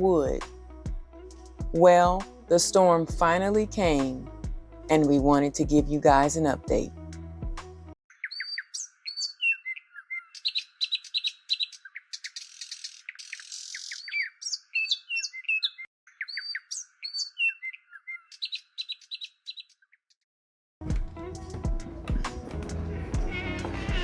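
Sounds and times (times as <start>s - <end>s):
songbirds chirping and singing: 8.1s - 20.0s, 21.0s - 24.0s
rasping buzz: 21.0s - 24.0s.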